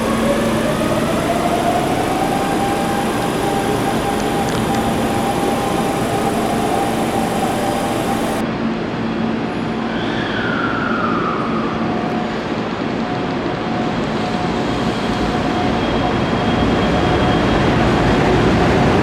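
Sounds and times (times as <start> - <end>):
falling whine: 0.0 - 8.5
electric train running past: 0.0 - 19.0.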